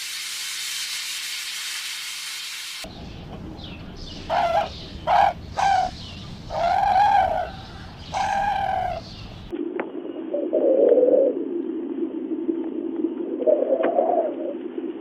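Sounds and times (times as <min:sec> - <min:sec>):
low steady rumble: 0:02.9 - 0:09.5
softer lower-pitched animal call: 0:04.3 - 0:09.0
pitched animal cries: 0:04.3 - 0:09.2.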